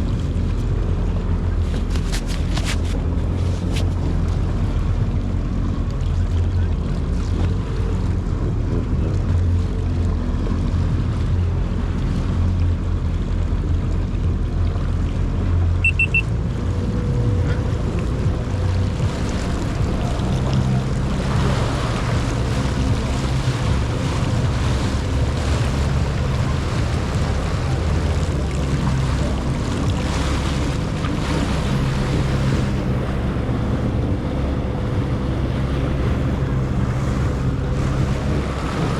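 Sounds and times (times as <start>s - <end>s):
jet ski engine running: 0.0s - 38.9s
water rushing past: 15.7s - 38.9s
high triple beep: 15.8s - 16.3s
wind on microphone: 16.4s - 38.9s.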